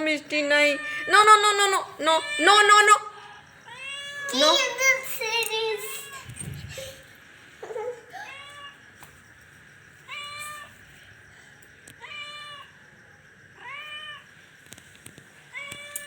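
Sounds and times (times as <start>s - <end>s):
cat meowing: 3.7s - 4.4s.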